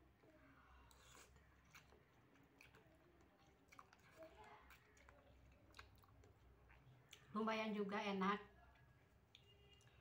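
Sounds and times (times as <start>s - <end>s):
chewing noodles: 0.2s - 7.3s.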